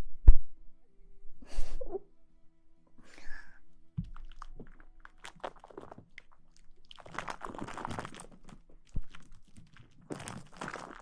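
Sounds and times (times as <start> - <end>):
crinkling rustles: 4.0 - 11.0.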